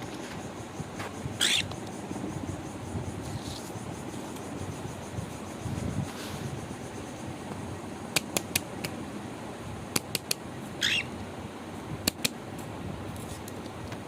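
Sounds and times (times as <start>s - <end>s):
steady background hiss: 0.0s - 14.0s
bird squawk: 1.4s - 1.7s, 10.8s - 11.1s
sharp clicks: 10.0s - 10.4s, 12.0s - 12.4s.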